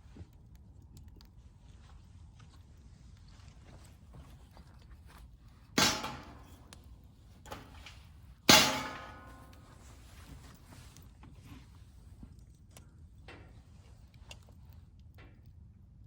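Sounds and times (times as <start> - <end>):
metal fire pit clanging: 5.7 - 10.2.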